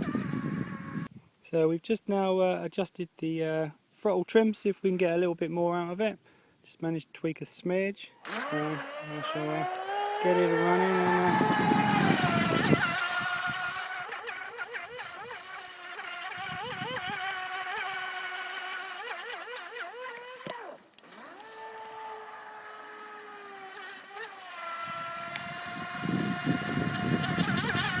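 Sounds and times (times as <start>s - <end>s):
toy boat motor whining: 0.0s - 1.1s, 8.2s - 28.0s.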